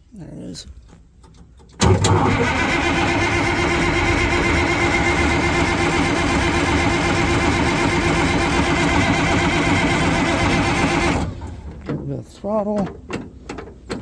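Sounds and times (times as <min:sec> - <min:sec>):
bulldozer diesel engine running: 0:01.8 - 0:14.0.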